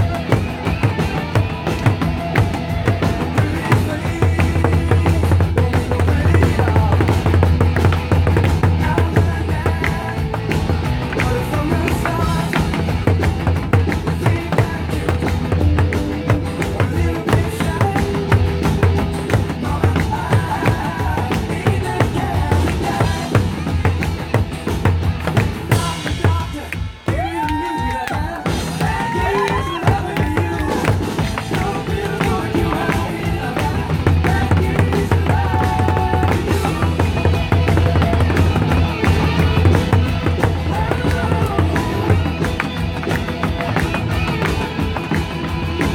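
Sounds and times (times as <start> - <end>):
live drumming: 0.0 - 45.9
recorded song with drum beat: 0.0 - 45.9.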